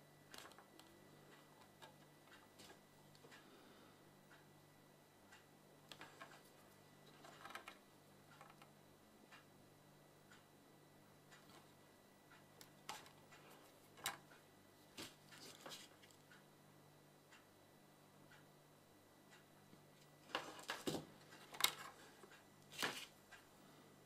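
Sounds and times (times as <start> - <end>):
low steady hum: 0.0 - 24.0
faint clicks and taps: 0.3 - 3.5, 5.3 - 9.5, 11.3 - 16.5.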